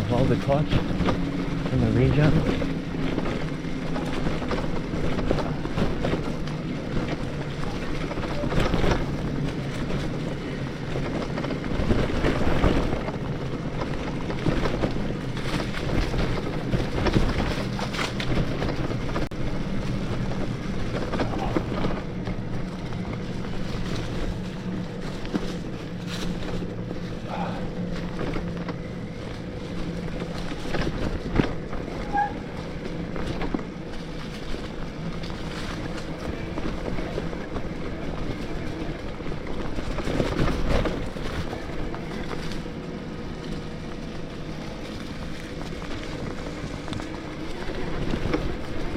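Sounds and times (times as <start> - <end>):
low motor hum: 0.0 - 48.9
tyres rolling over dirt: 0.0 - 48.9.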